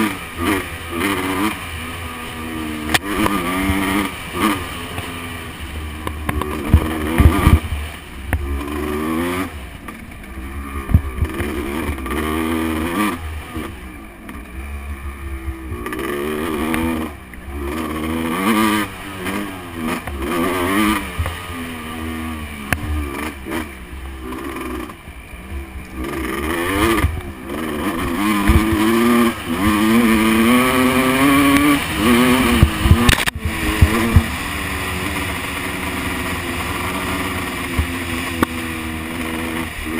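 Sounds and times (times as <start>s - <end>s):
motocross bike engine revving: 0.0s - 39.9s
sharp thumps: 6.0s - 8.6s, 31.2s - 34.4s.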